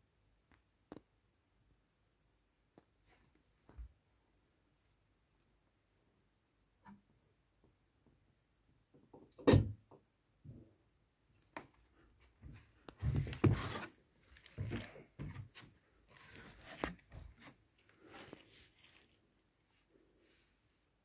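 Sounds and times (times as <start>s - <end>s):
scuffling on hard surface: 12.2s - 19.3s.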